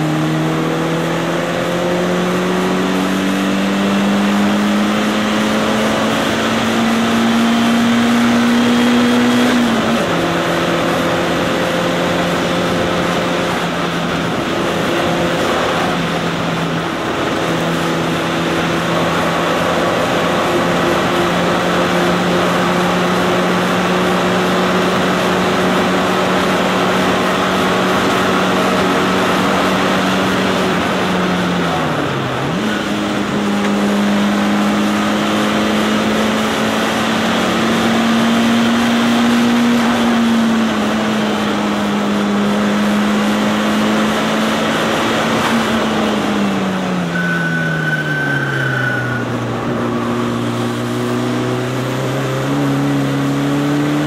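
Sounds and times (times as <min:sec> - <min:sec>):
car engine pulling hard: 0:00.0 - 0:54.0
brief high-pitched tone: 0:47.1 - 0:49.4.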